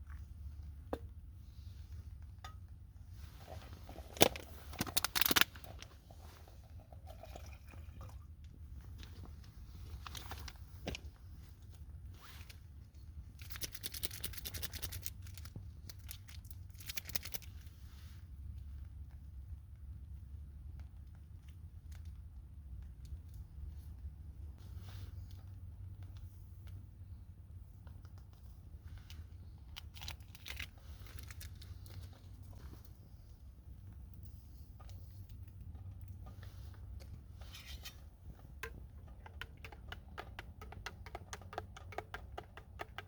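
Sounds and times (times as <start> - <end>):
crackling rustles: 8.7 - 19.0, 27.6 - 39.4.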